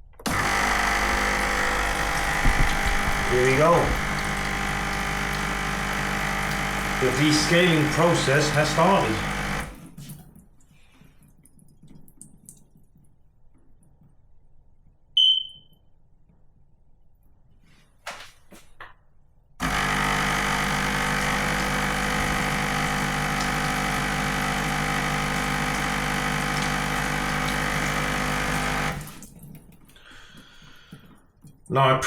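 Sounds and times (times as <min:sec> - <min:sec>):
pump buzzing hum: 0:00.0 - 0:10.1, 0:19.6 - 0:29.8
short high beep: 0:15.2 - 0:15.7.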